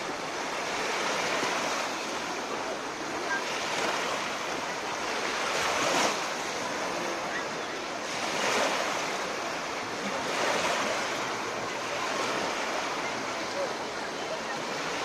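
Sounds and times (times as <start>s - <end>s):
surf washing onto shore: 0.0s - 15.0s.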